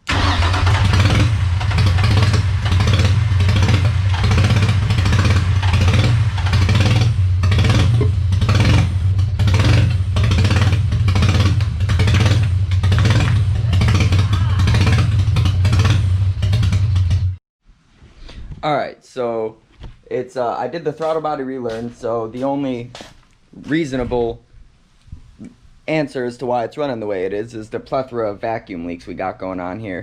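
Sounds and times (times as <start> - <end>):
car engine idling roughly: 0.1 - 17.3.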